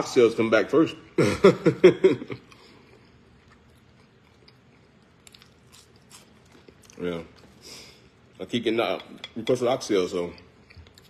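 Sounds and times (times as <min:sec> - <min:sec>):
man chewing: 0:02.4 - 0:08.3, 0:10.4 - 0:11.0
soft biting and mouth clicks: 0:02.5 - 0:07.6, 0:10.4 - 0:11.0.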